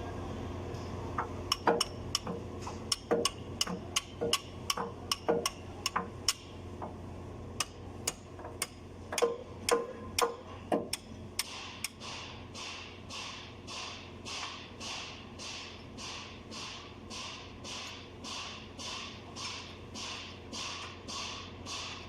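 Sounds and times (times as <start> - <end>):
metallic clicks and taps: 1.2 - 6.9, 7.6 - 12.0.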